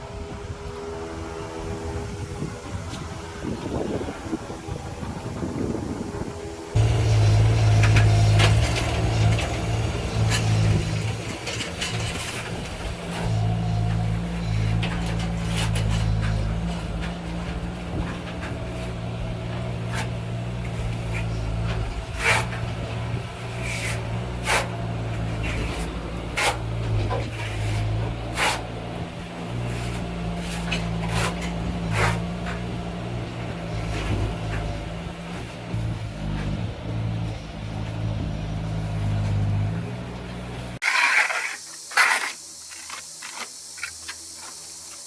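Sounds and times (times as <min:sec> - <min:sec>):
low engine hum: 0:00.0 - 0:40.8.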